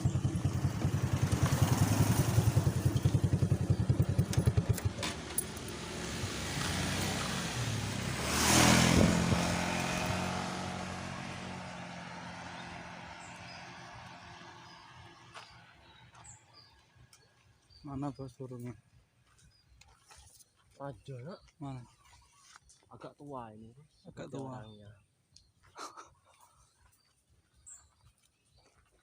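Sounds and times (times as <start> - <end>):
motorcycle engine running: 0.0 - 17.4.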